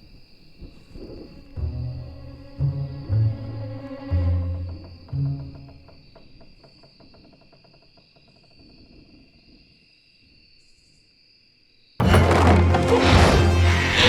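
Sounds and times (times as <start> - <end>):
crickets trilling: 0.0 - 12.0
loud burst of music: 12.0 - 14.0.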